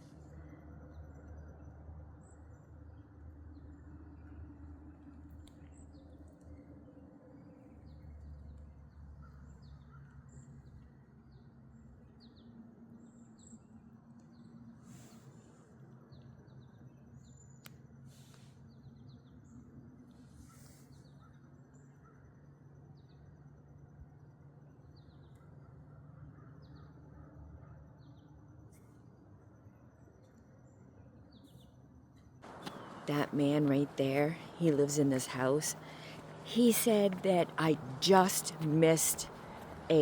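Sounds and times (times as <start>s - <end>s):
low hum: 32.5s - 40.0s
songbirds chirping: 32.5s - 40.0s.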